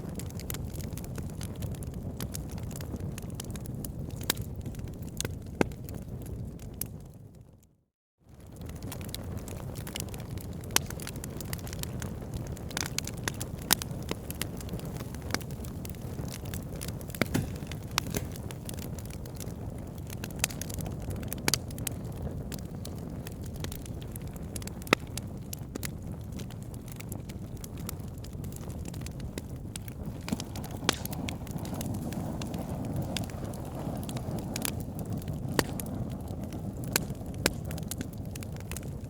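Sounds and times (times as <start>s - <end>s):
logs crackling and popping: 0.0s - 7.2s, 8.3s - 39.0s
low rumble of flames: 0.0s - 39.0s.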